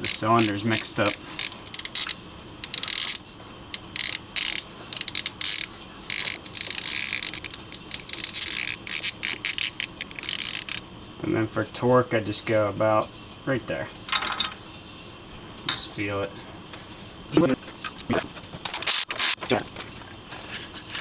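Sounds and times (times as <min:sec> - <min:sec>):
socket ratchet clicking: 0:00.0 - 0:10.8, 0:18.7 - 0:19.4.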